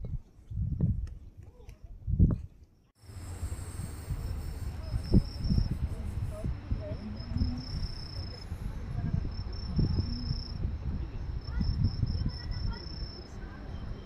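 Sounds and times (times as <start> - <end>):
insects chirring: 3.0 - 14.0.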